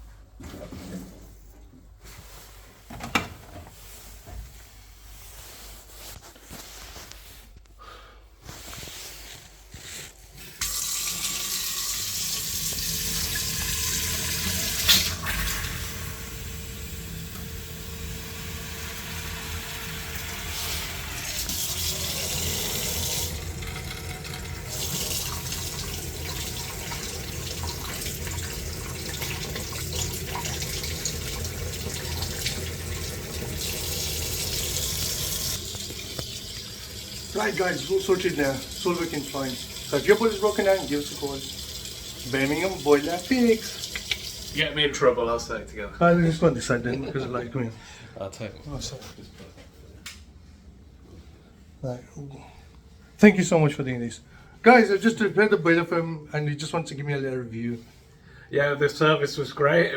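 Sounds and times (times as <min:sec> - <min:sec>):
water running from a tap: 0:10.5 - 0:44.8.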